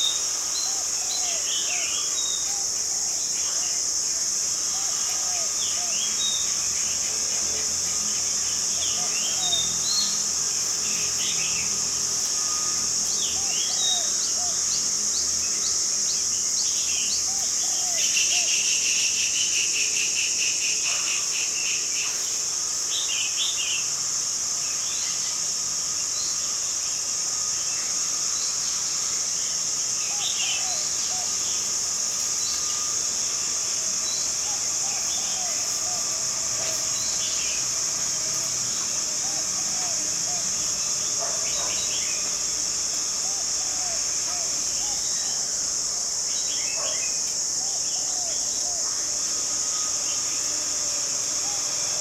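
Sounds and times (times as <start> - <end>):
high-pitched insect drone: 0.0 - 52.0.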